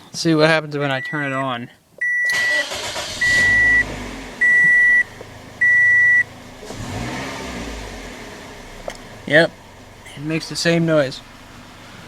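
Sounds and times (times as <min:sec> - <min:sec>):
dashboard warning chime beeping: 0:00.9 - 0:06.3
car engine running: 0:02.5 - 0:12.0.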